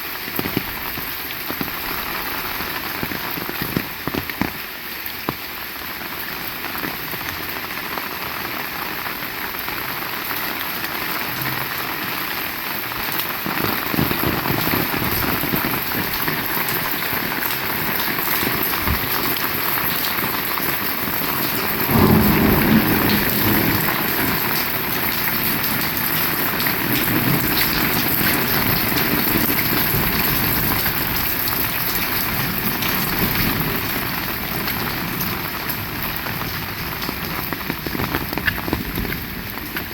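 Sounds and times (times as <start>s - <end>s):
heavy rain falling: 0.0s - 39.9s
thunder rumbling: 13.5s - 39.9s.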